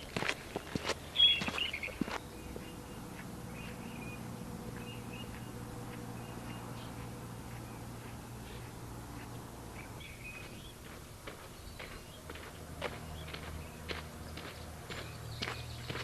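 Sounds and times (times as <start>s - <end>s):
footsteps on a trail: 0.0s - 16.0s
low outdoor hum: 0.0s - 16.0s
faint bird chirps: 1.2s - 5.6s.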